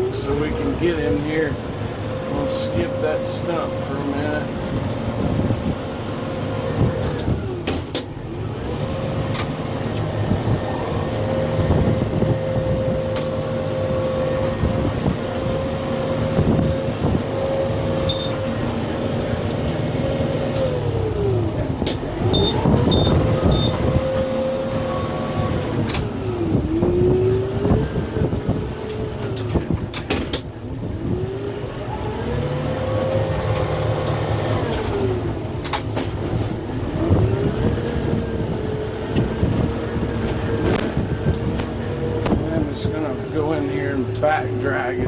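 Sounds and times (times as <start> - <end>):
tractor diesel engine running: 0.0 - 45.0
short high beeps: 18.1 - 18.4.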